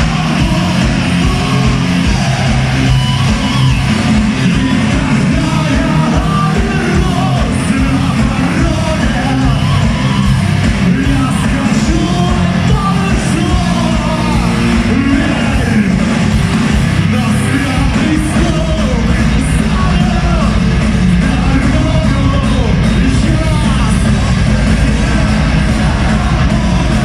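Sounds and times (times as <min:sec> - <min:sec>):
person singing: 0:00.0 - 0:03.3, 0:04.4 - 0:16.0
live metal band playing: 0:00.0 - 0:27.0.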